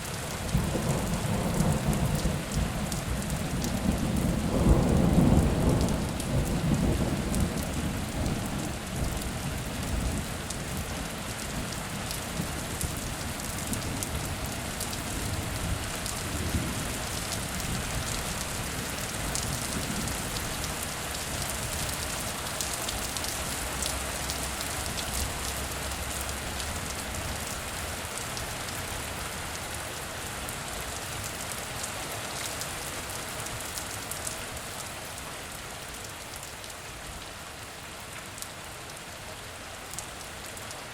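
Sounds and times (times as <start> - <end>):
heavy rain falling: 0.0 - 40.9
thunder rumbling: 0.5 - 9.2.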